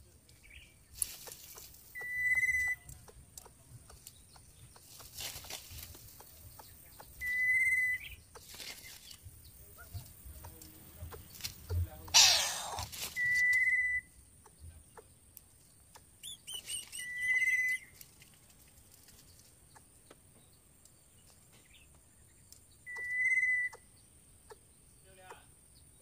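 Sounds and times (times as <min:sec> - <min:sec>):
bird chirping quickly: 0:00.4 - 0:18.0, 0:19.6 - 0:26.0
bird whistling long high notes: 0:02.0 - 0:02.8, 0:07.2 - 0:08.2, 0:12.2 - 0:14.1, 0:16.2 - 0:17.9, 0:22.8 - 0:23.8.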